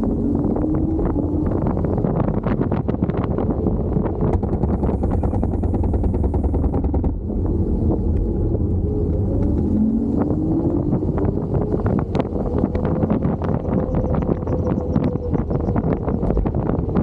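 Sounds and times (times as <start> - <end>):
road rumble: 0.0 - 17.0
wind buffeting microphone: 0.0 - 17.0
small rattles and clicks: 4.1 - 7.2.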